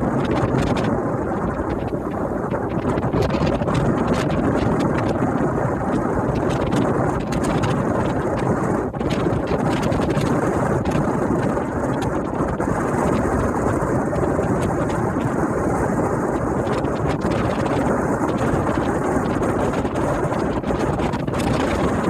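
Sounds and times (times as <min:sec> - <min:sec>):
low rumble of ship: 0:00.0 - 0:22.0
wind buffeting microphone: 0:00.0 - 0:22.0.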